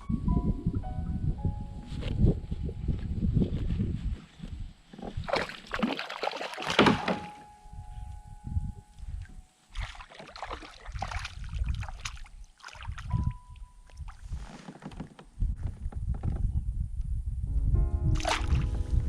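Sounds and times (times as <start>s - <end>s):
water splashing around boat: 4.9s - 7.5s, 9.7s - 14.7s, 18.2s - 18.7s
knocks and rustling handling: 14.2s - 16.4s.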